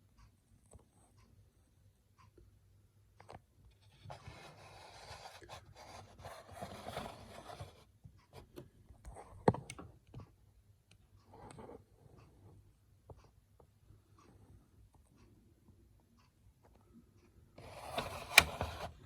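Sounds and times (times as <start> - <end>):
scattered clicks: 17.7 - 19.0.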